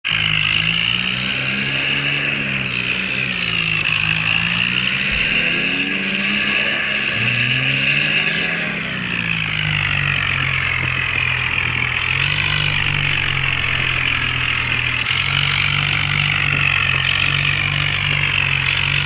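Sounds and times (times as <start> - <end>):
tractor engine revving: 0.0 - 19.0.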